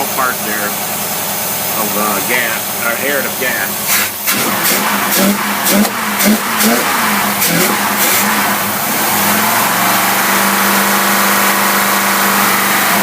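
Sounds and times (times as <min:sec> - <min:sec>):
car engine at raised revs: 0:00.0 - 0:13.0.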